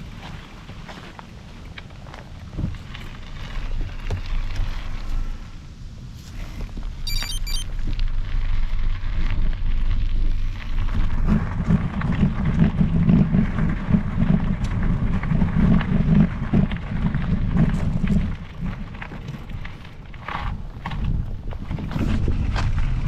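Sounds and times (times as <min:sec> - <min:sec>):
wind rumbling on microphone: 0:00.0 - 0:07.1, 0:07.7 - 0:23.0
crackling tyre noise on trail: 0:00.0 - 0:23.0.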